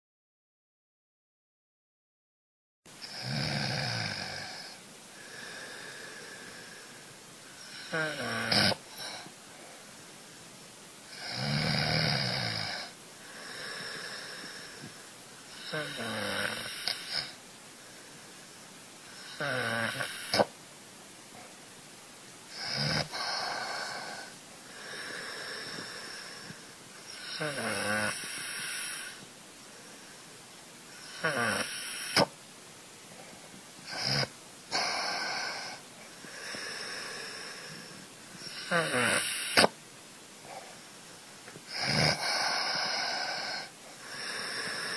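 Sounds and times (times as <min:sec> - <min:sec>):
cat snoring: 0:03.0 - 0:07.0, 0:07.6 - 0:09.3, 0:11.1 - 0:17.4, 0:19.1 - 0:20.5, 0:22.5 - 0:29.2, 0:30.9 - 0:32.3, 0:33.9 - 0:39.8, 0:41.7 - 0:44.9.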